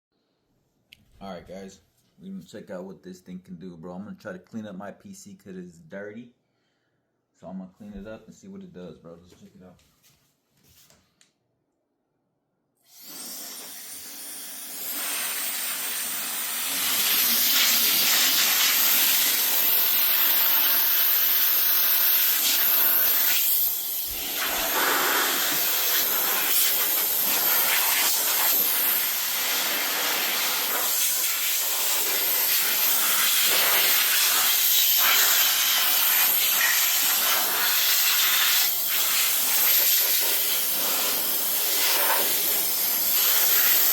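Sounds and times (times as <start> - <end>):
electric air duster blowing: 12.8 - 43.9.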